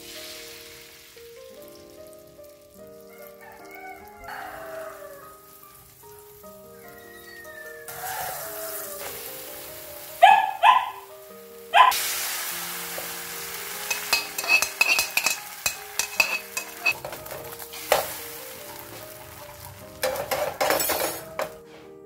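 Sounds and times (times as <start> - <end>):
egg batter sizzling in oil: 0.0 - 21.6
background music: 0.0 - 22.0
dog barking: 10.2 - 11.1, 11.7 - 12.0
metal spatula clicks and scrapes: 13.9 - 17.2.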